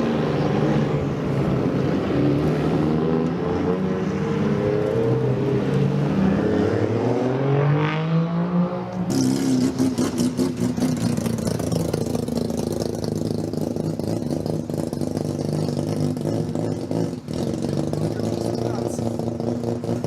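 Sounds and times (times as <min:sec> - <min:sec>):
car engine high idle: 0:10.9 - 0:20.0.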